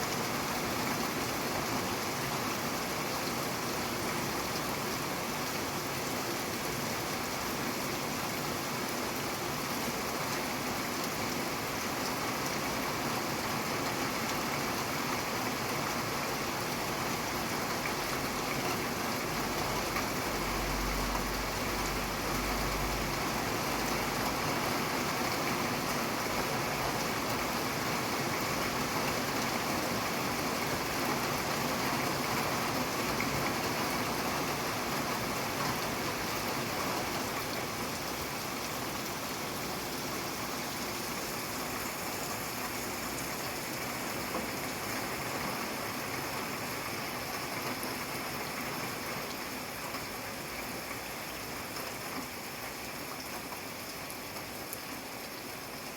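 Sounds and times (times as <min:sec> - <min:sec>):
steady rain falling: 0:00.0 - 0:55.9.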